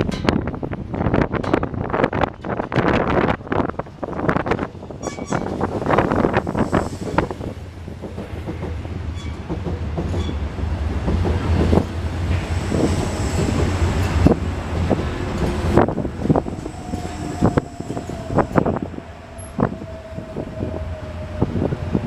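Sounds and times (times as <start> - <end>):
low train rumble: 0.0 - 22.0
train wheels clacking over rail joints: 4.0 - 20.6.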